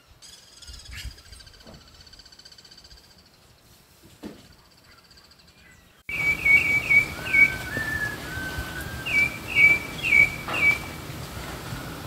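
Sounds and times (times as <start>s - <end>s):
bird whistling short clear notes: 6.1s - 10.9s
lower drawn-out bird whistles: 6.1s - 11.0s.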